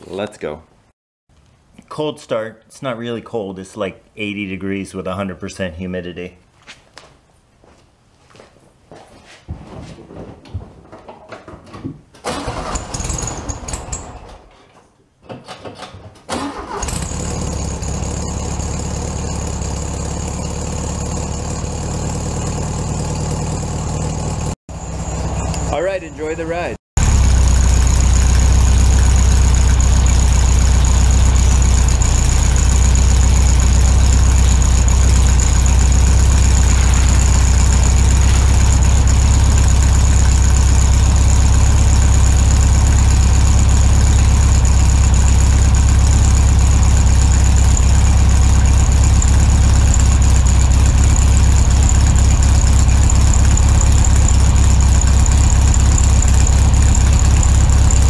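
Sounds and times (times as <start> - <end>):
car engine running: 16.6 - 58.0.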